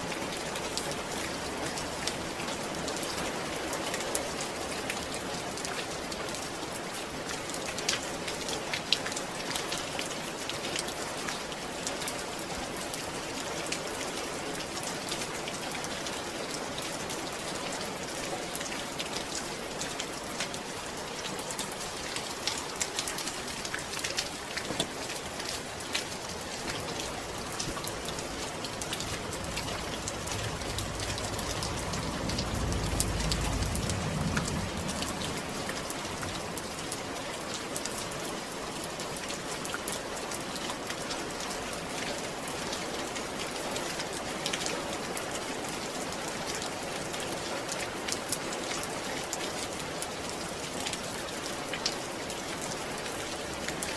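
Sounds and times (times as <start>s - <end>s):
rain falling: 0.0s - 53.9s
low rumble: 28.4s - 36.5s.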